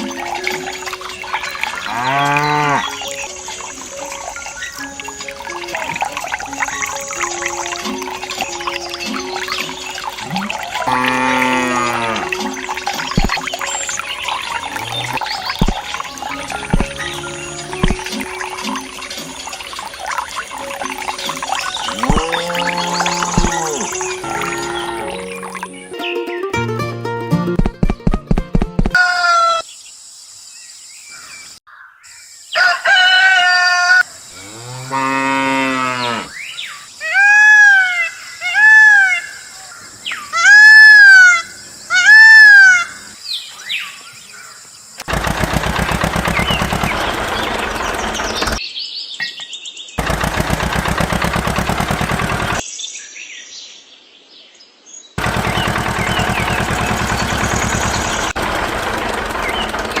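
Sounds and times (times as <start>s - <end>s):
cow mooing: 1.8s - 3.0s, 10.2s - 12.4s, 14.7s - 15.3s, 22.0s - 25.3s, 34.4s - 36.4s
higher animal calls: 10.1s - 13.4s, 14.3s - 18.6s, 21.8s - 25.8s
small engine running: 22.0s - 25.5s, 45.0s - 48.6s, 50.0s - 52.6s, 55.2s - 60.0s.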